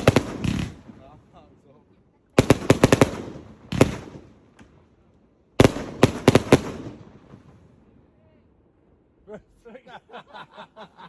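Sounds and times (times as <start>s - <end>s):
firework bang: 0.0s - 1.1s
fireworks cracking: 0.0s - 1.7s, 2.4s - 5.0s, 5.6s - 7.9s.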